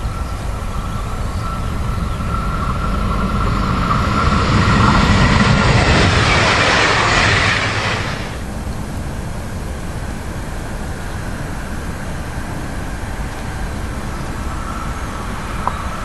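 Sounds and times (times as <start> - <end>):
high train whine: 0.0 - 16.0
train passing at speed: 0.0 - 16.0.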